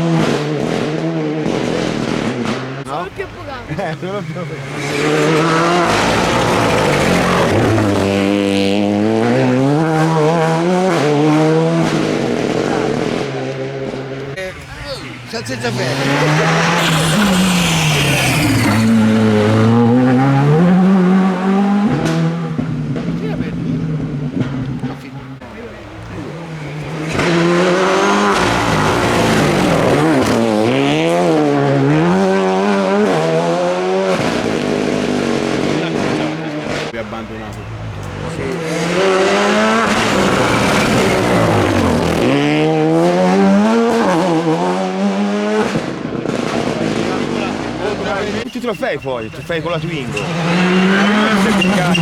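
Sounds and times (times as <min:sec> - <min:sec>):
rally car engine revving: 0:00.0 - 0:52.0.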